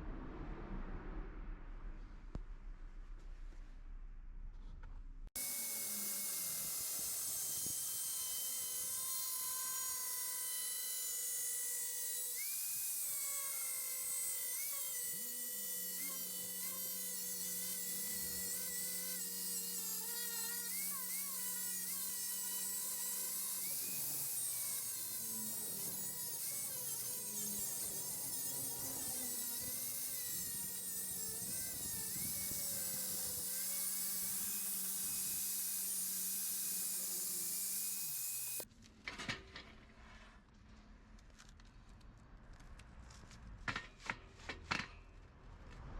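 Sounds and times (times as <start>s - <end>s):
power tool whining on steel: 5.4s - 38.7s.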